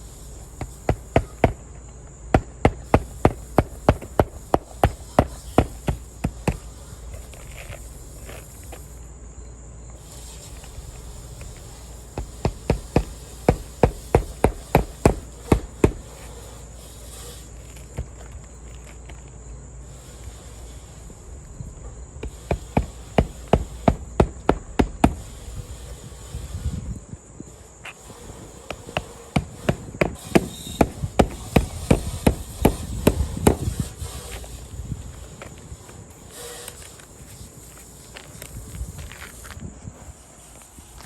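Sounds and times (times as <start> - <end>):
hammer driving nails into shingle: 0.4 - 7.7, 11.5 - 16.3, 22.2 - 25.6, 28.6 - 34.4.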